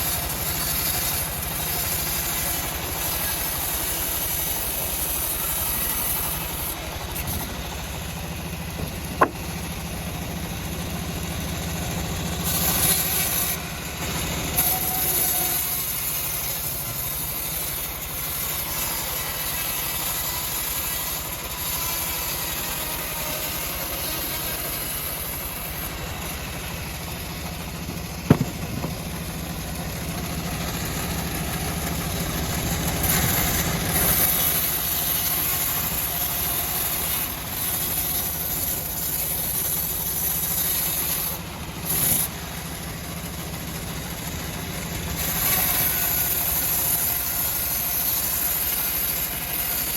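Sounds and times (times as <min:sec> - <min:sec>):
engine-driven bandsaw running: 0:00.0 - 0:49.9
sharp knock: 0:09.2 - 0:09.4, 0:27.9 - 0:29.2.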